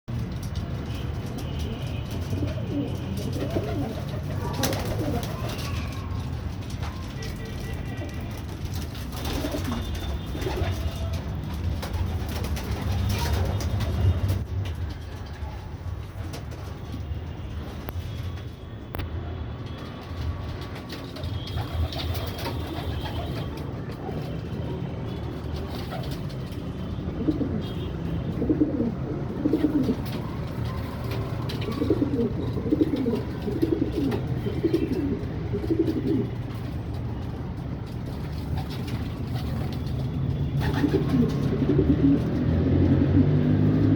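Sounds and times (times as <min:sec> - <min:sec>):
pigeons cooing: 0:02.3 - 0:06.1, 0:27.1 - 0:36.4, 0:40.6 - 0:43.9.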